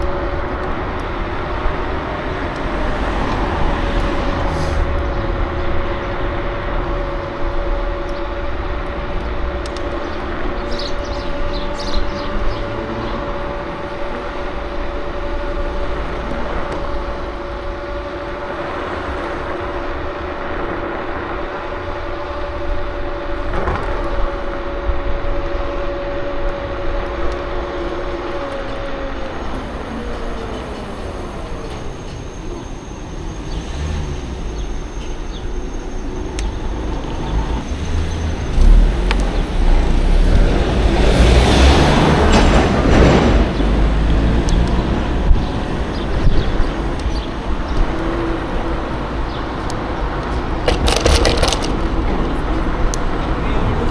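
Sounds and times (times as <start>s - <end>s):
loud rush of noise: 0.0s - 33.8s
electric scooter motor whine: 0.0s - 53.9s
road rumble: 0.0s - 53.9s
wind: 0.0s - 53.9s.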